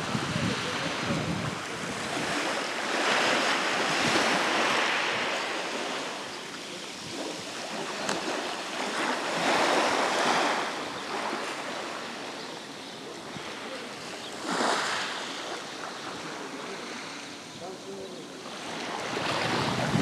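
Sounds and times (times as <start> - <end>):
wind on microphone: 0.0 - 11.6, 18.9 - 20.0
waves washing onto pebbles: 0.0 - 12.3, 13.5 - 17.2.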